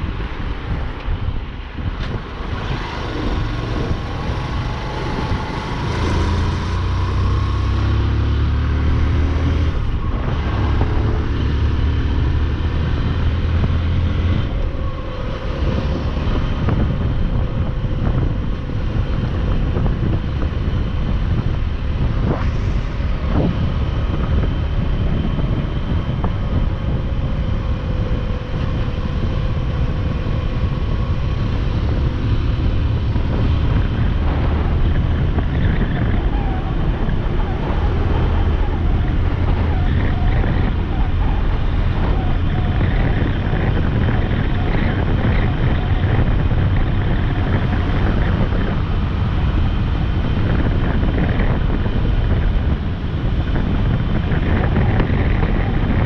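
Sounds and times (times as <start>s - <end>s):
wind and road noise: 0.0s - 56.0s
motorcycle engine running: 9.7s - 56.0s.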